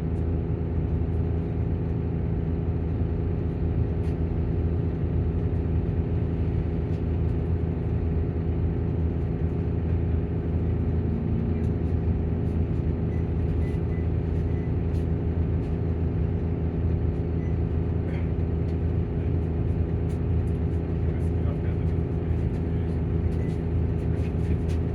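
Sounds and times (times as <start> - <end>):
coach engine running: 5.3 - 24.9
cooling fan running: 8.0 - 24.9.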